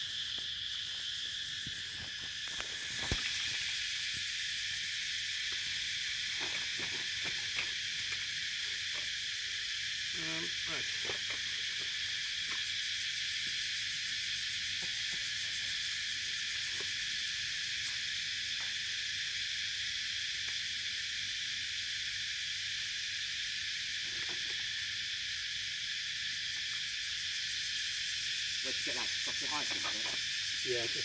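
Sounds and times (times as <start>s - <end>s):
high-pitched outdoor hiss: 0.0s - 31.0s.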